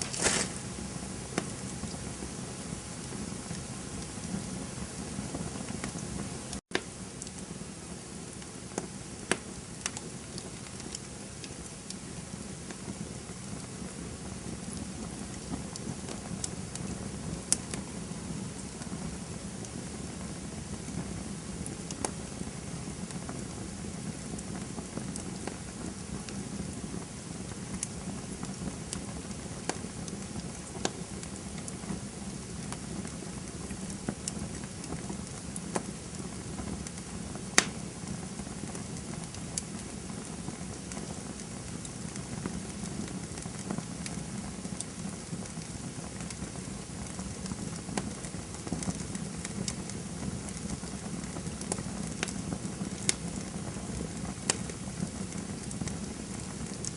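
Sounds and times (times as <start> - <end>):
wood popping and snapping: 0.0 - 0.6, 37.6 - 37.8
campfire crackling: 0.0 - 56.9.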